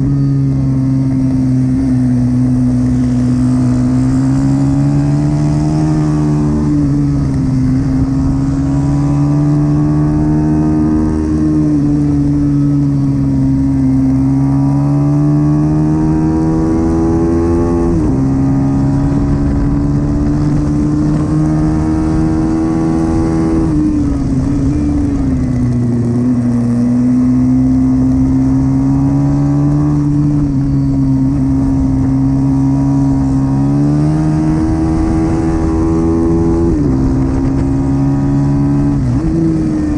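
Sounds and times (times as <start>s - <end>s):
pit bike engine racing: 0.0s - 39.9s.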